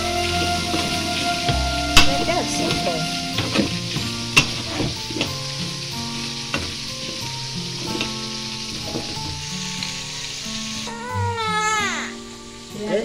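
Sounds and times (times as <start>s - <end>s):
wooden spoon stirring in pot: 0.0s - 9.8s
hot oil sizzling: 0.0s - 13.0s.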